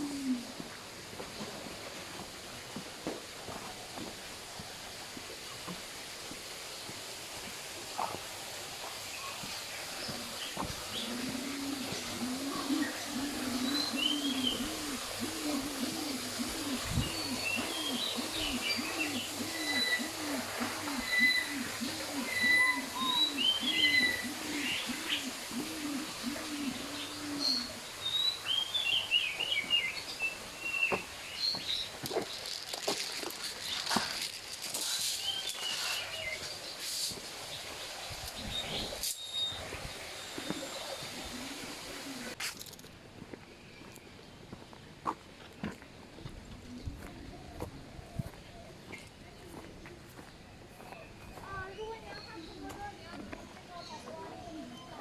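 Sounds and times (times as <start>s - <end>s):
pigeon cooing: 0.0s - 0.6s, 10.0s - 28.0s, 40.4s - 42.4s
steady outdoor hiss: 0.0s - 55.0s
faint high bird chirps: 21.0s - 25.3s.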